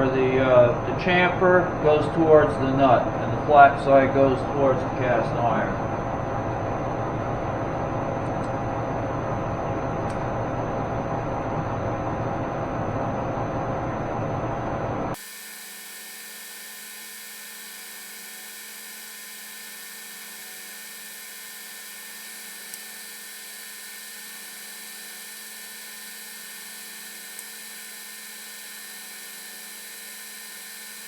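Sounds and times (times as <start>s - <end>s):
steady electrical hum: 15.1s - 31.0s.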